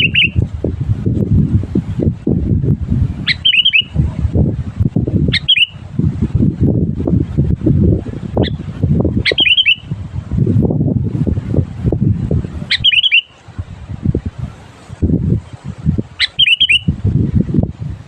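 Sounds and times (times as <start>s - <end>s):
bird calling bubbly notes: 0.0s - 0.4s, 3.2s - 3.9s, 5.3s - 5.8s, 9.2s - 9.9s, 12.7s - 13.4s, 16.2s - 16.9s
loud uneven low rumbling: 0.0s - 3.3s, 3.9s - 9.2s, 9.9s - 12.7s.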